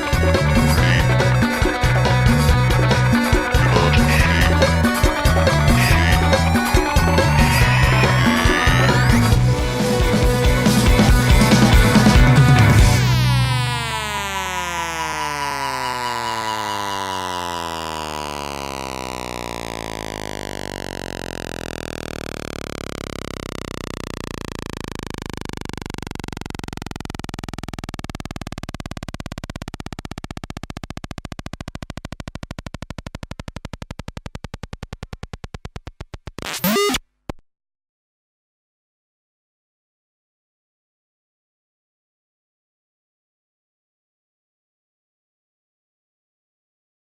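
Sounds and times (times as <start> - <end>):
electronic synthesizer music: 0.0 - 35.1.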